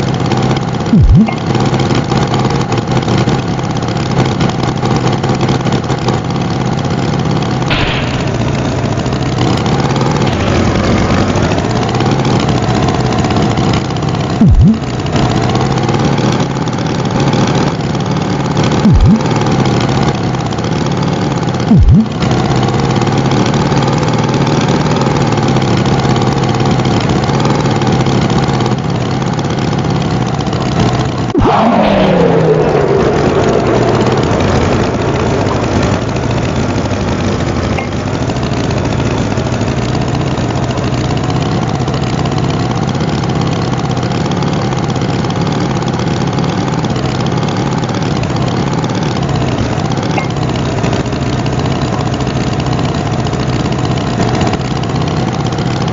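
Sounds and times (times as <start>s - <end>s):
tractor engine running: 0.0s - 55.9s
low thumps: 1.0s - 1.4s, 14.4s - 14.9s, 18.8s - 19.2s, 21.7s - 22.1s.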